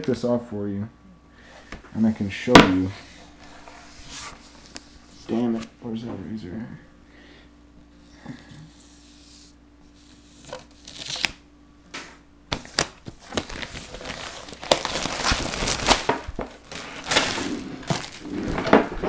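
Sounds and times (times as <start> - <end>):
packaging wrap tearing and crinkling: 12.6 - 19.0.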